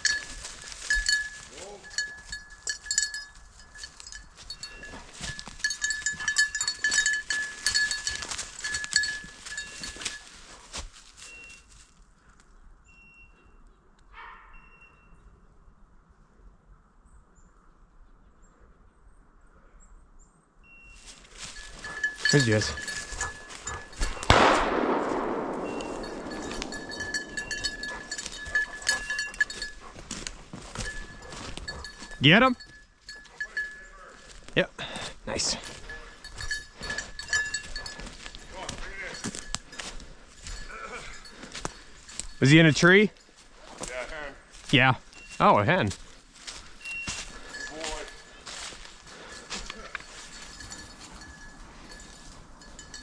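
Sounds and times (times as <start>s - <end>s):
dog collar bell jingling: 0.0s - 11.7s, 21.0s - 53.0s
shotgun shot: 24.2s - 27.3s.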